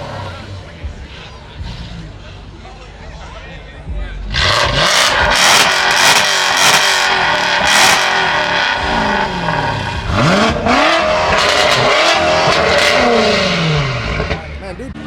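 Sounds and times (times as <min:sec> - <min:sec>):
car engine revving hard: 0:04.3 - 0:14.6.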